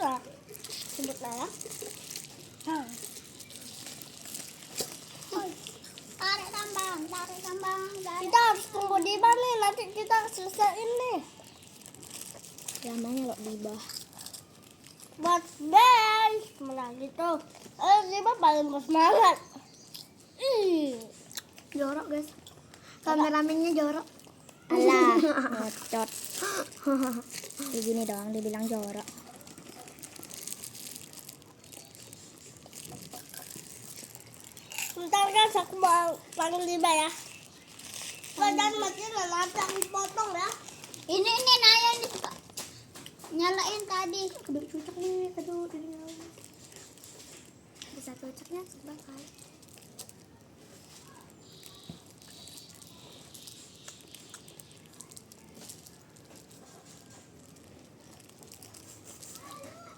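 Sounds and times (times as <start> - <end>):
plastic wrappers crinkling: 0.0 - 20.2, 20.9 - 59.9
people eating snacks: 0.0 - 59.9.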